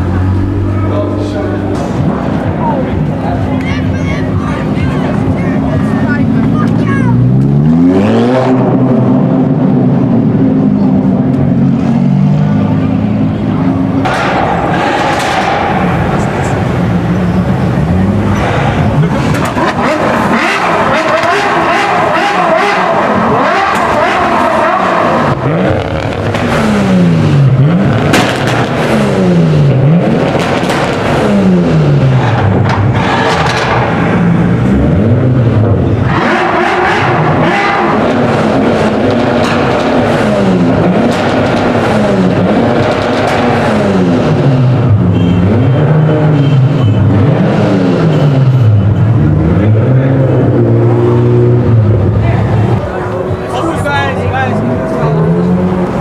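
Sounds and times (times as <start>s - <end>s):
sports car engine revving: 0.0s - 56.0s
sharp crack: 14.0s - 16.6s, 27.9s - 29.2s, 30.1s - 31.4s.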